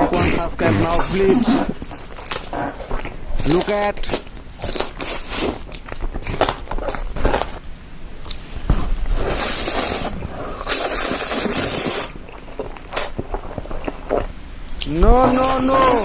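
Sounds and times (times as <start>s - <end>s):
food scraping and squishing: 0.0s - 16.0s
steady hiss: 7.6s - 13.6s.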